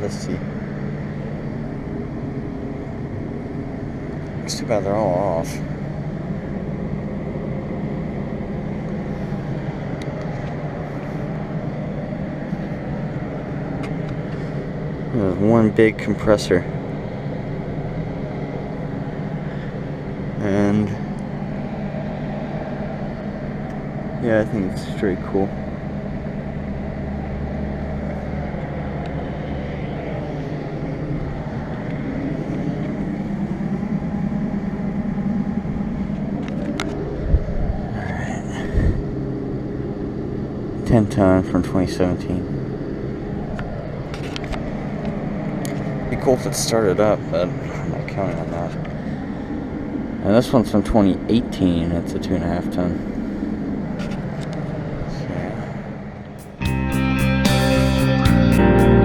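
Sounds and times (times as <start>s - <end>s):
low mechanical hum: 0.0s - 59.0s
low outdoor rumble: 0.0s - 59.0s.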